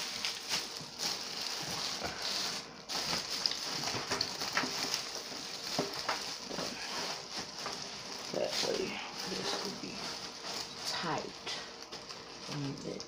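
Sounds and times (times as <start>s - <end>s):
high sizzling: 0.0s - 13.0s.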